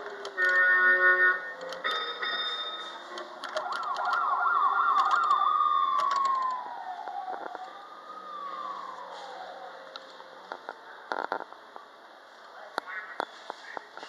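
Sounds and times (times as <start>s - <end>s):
electronic warbling siren: 0.4s - 11.1s.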